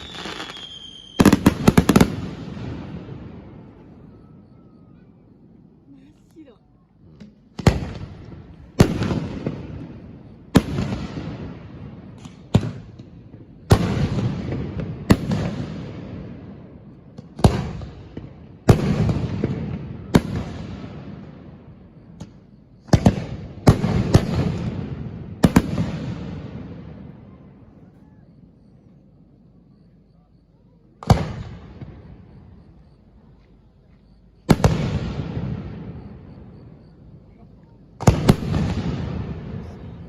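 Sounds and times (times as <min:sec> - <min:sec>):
firework shells booming: 0:00.0 - 0:03.9, 0:07.1 - 0:27.1, 0:31.0 - 0:33.0, 0:34.4 - 0:37.2, 0:38.0 - 0:40.0.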